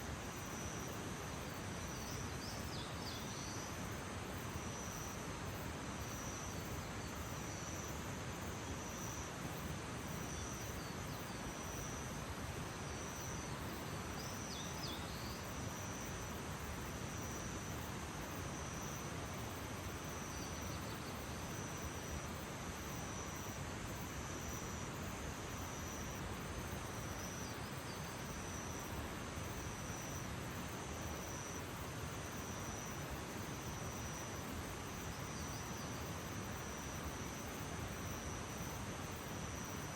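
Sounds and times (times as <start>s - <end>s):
steady hiss: 0.0s - 39.9s
faint bird chirping: 0.3s - 16.3s.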